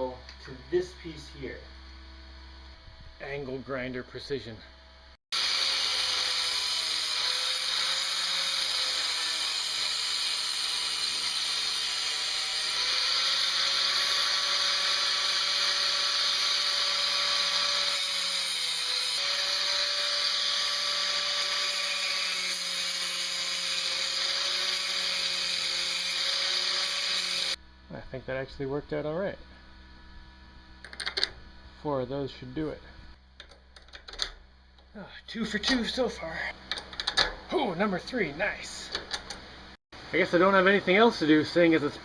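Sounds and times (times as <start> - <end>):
angle grinder grinding metal: 5.4 - 27.6.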